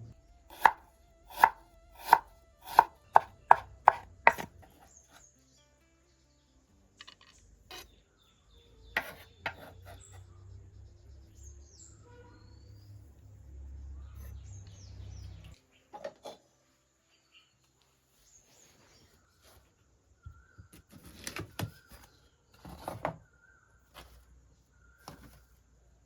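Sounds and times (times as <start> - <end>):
bird chirps: 2.6 - 13.1, 13.7 - 16.0.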